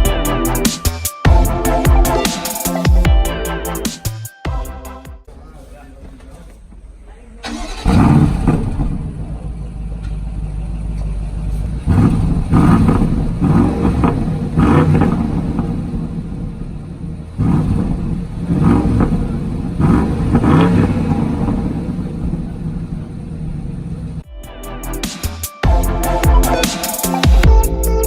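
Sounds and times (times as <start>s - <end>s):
car engine revving: 5.3s - 24.3s.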